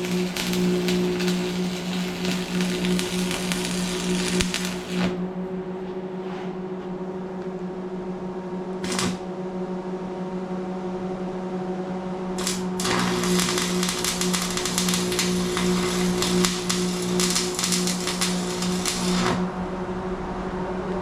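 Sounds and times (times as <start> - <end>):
welding arc crackling: 0.0 - 5.2, 8.8 - 9.2, 12.4 - 19.5
welder low hum: 0.0 - 21.0.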